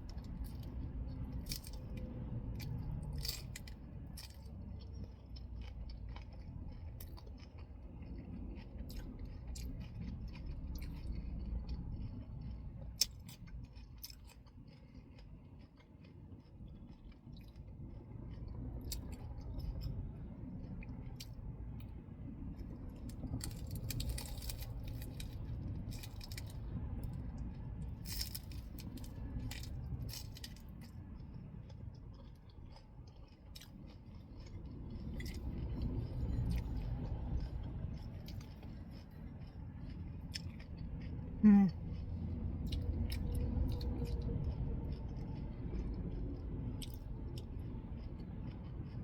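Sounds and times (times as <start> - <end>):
chewing and crunching lettuce: 0.0 - 49.0
low rumble: 16.6 - 49.0.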